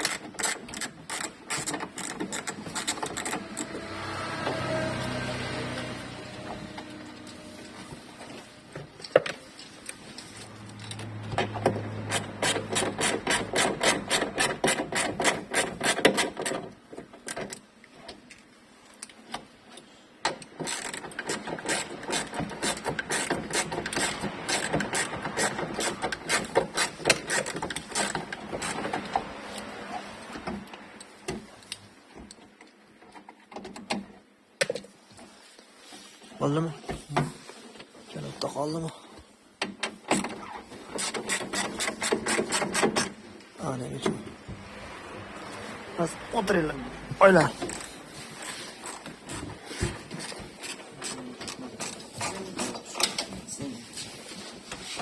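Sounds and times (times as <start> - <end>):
ratcheting clicks: 0.0 - 3.8.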